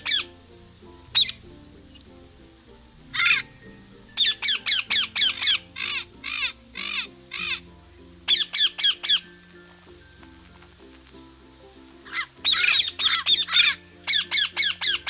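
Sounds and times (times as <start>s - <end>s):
background music: 0.0s - 15.0s
bird short high calls: 4.1s - 7.6s, 12.1s - 15.0s.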